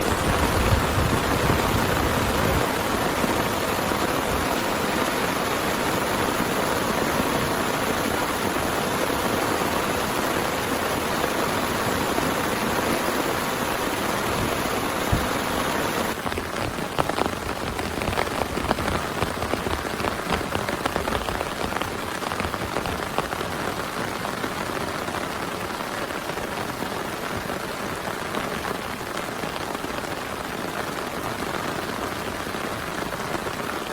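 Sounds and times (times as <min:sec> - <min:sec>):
heavy rain hiss: 0:00.0 - 0:33.9.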